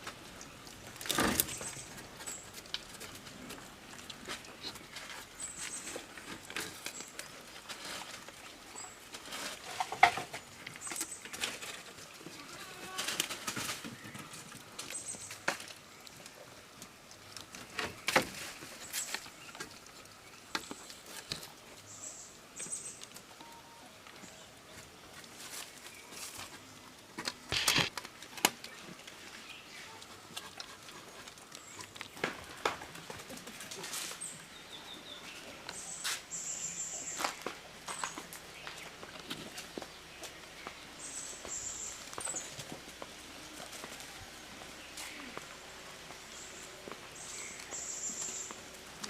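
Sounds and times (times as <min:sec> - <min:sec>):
goats rustling and crunching leaves: 0:00.0 - 0:49.0
rustling and tearing of leaves: 0:09.1 - 0:21.9, 0:25.2 - 0:34.6
faint high chirps: 0:23.4 - 0:23.9.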